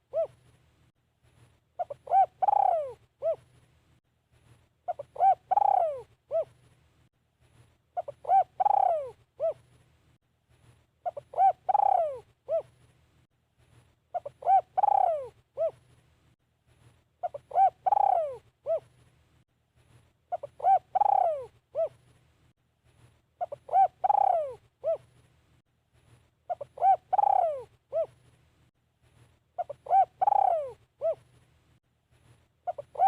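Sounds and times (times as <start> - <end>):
dove cooing: 0.0 - 0.5, 1.8 - 3.5, 4.9 - 6.6, 8.0 - 9.6, 11.0 - 12.8, 14.1 - 15.8, 17.2 - 18.9, 20.3 - 22.0, 23.4 - 25.1, 26.5 - 28.2, 29.6 - 31.3, 32.6 - 33.0.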